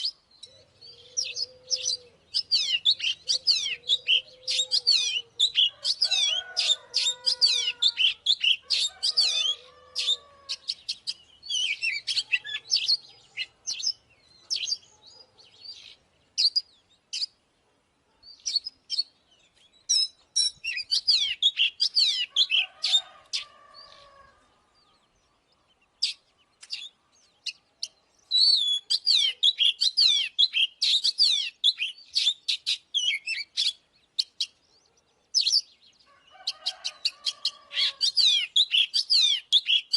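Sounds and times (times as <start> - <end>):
songbird singing varied whistles: 18.3 - 19.1, 26.0 - 34.6, 37.9 - 39.9.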